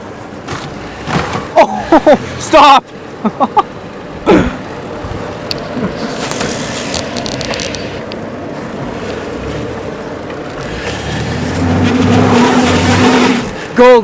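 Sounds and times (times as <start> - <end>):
van engine running low: 0.0 - 14.0
van body clattering: 0.4 - 2.5.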